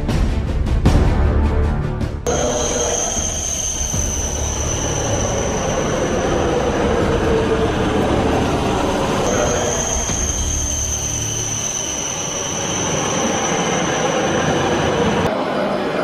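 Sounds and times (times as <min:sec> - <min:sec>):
high-pitched whine: 0:02.3 - 0:15.3
high-speed train rumbling: 0:02.3 - 0:16.0.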